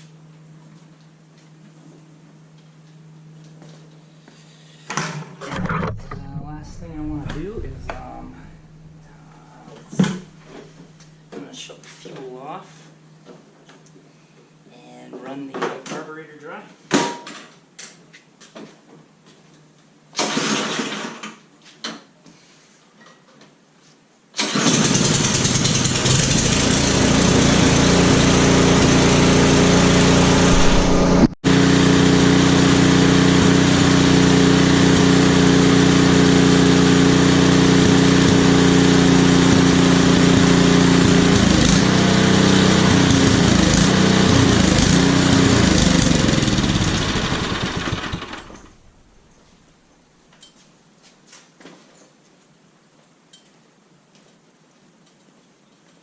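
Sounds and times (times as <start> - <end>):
snowblower engine running: 6.4 - 10.6, 24.4 - 49.2.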